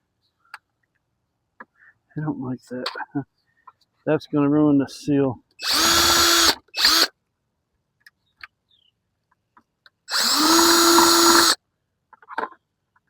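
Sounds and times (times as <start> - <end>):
power drill drilling plastic: 5.6 - 7.1, 10.1 - 11.6.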